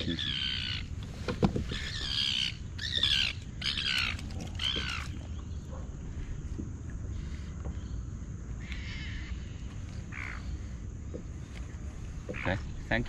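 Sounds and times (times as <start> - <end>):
bird squawking: 0.0 - 1.0, 1.7 - 5.2.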